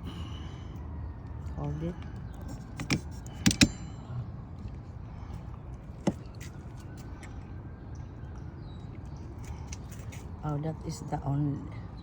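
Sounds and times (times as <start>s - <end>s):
clicks of wiper parts being fitted: 2.5s - 3.8s.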